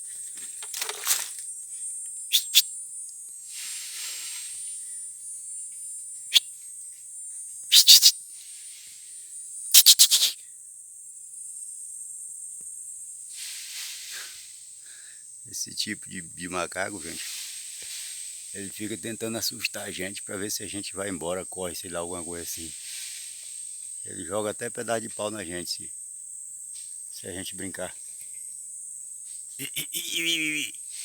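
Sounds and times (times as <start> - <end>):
high insect drone: 0.0 - 31.0
short sharp bursts: 2.3 - 2.6, 7.7 - 8.1, 9.7 - 10.4.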